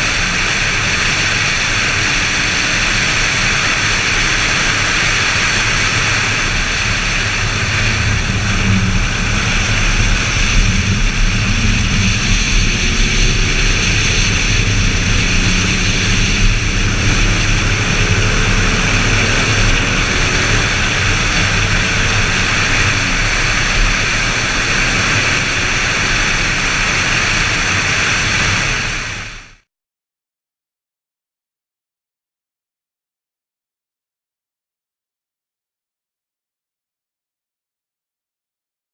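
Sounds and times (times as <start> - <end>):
car engine: 0.0 - 29.6
wind and road noise: 0.0 - 29.6.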